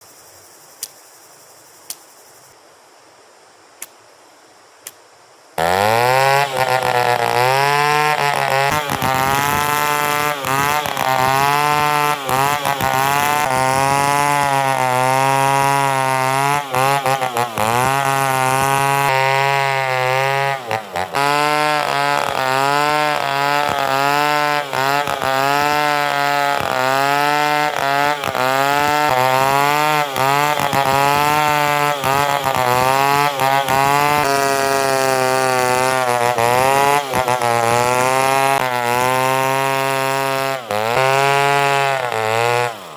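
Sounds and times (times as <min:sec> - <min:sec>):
sharp clicks: 0:00.7 - 0:01.2, 0:01.8 - 0:02.3
chainsaw cutting wood: 0:05.6 - 0:42.9.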